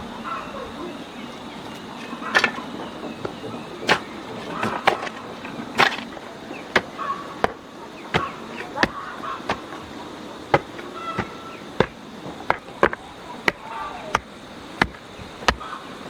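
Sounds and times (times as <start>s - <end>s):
blade chopping: 5.8s - 15.8s.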